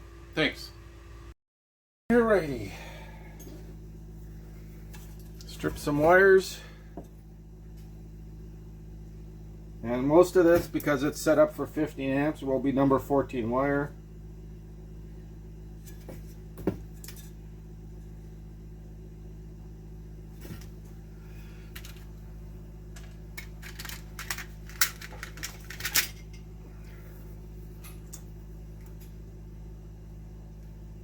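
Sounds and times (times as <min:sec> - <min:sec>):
steady low hum: 0:02.1 - 0:31.0
hand tools clicking and snipping wire: 0:23.0 - 0:26.4.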